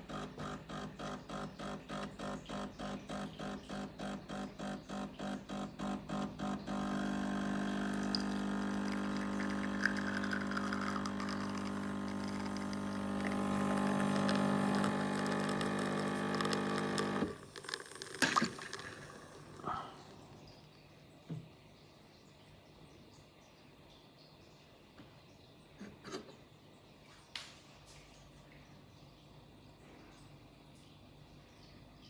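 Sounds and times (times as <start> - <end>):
espresso machine pump humming: 0.0 - 20.6.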